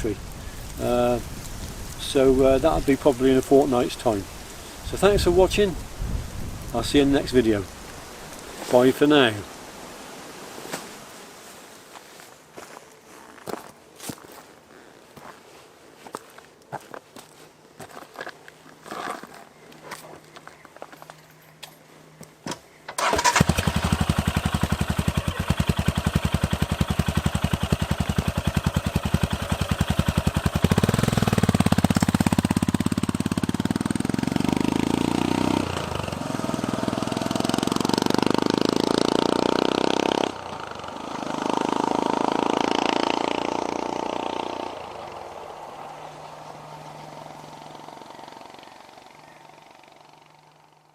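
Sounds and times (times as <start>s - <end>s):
motorcycle engine starting and idling: 22.9s - 50.9s
motorcycle accelerating through gears: 23.0s - 50.9s.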